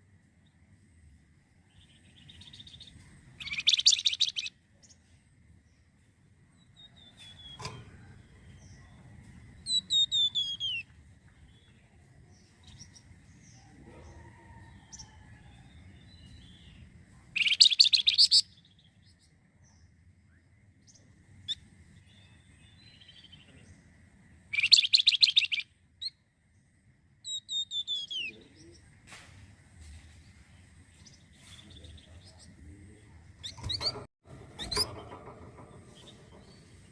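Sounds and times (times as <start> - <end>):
songbird whistling: 3.4 - 4.5, 9.6 - 10.9, 17.4 - 18.5, 24.5 - 25.7, 27.3 - 28.4.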